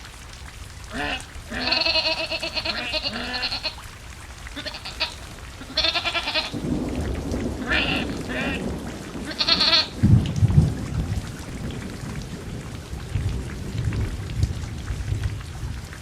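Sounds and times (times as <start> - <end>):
rain: 0.0 - 16.0
livestock bleating: 0.9 - 3.8, 4.6 - 6.6, 7.6 - 8.6, 9.3 - 10.0
low rumble of thunder: 5.3 - 16.0.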